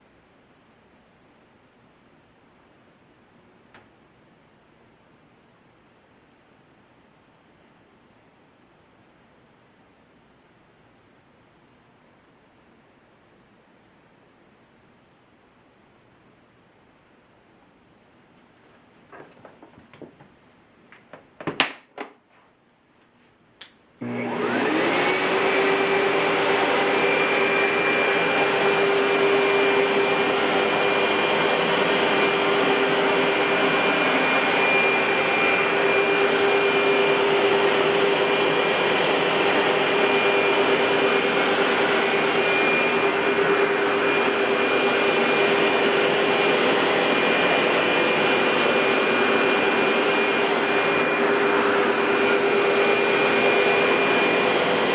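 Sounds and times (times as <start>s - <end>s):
upright vacuum cleaner running: 24.0s - 54.9s.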